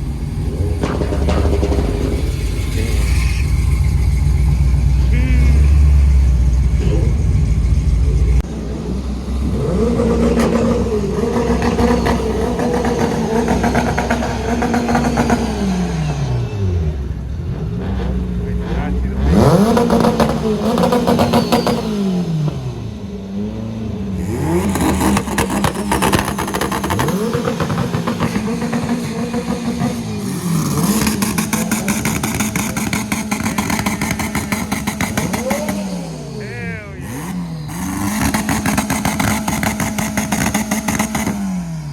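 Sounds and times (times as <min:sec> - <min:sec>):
heavy low rumble: 0:00.0 - 0:11.2
car engine revving: 0:00.0 - 0:41.9.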